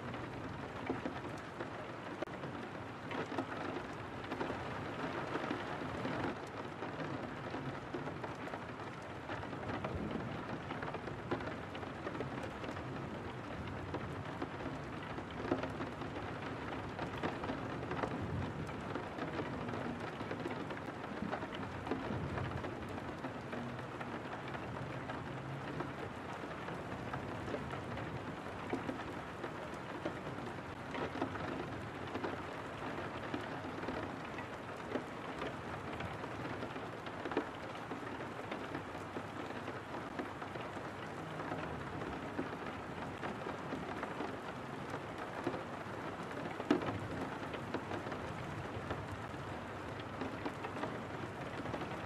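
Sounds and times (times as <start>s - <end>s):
rain on a window pane: 0.0s - 52.0s.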